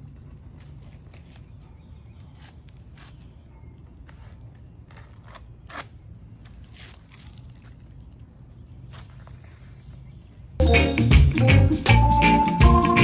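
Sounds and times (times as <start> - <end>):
scraping cuts through shingles: 4.0 - 8.1.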